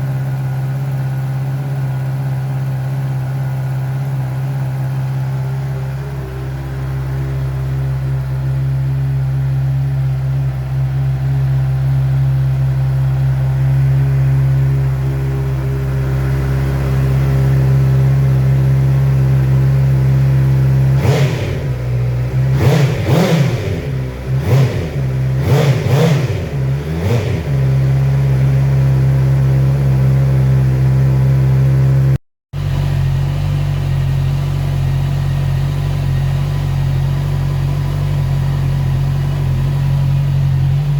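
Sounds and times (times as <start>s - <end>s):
motorcycle engine idling and revving: 0.0s - 40.9s.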